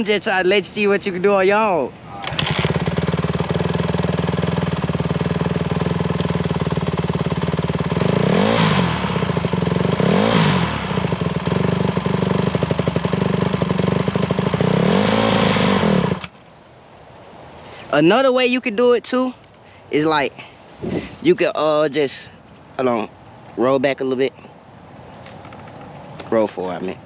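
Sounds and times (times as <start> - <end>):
dirt bike engine idling and revving: 2.2 - 16.4.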